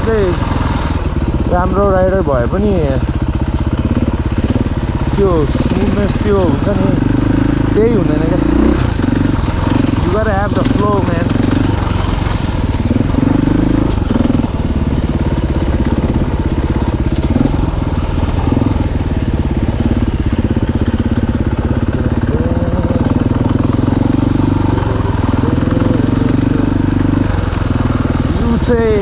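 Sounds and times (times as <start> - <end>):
dirt bike engine running: 0.0 - 29.0.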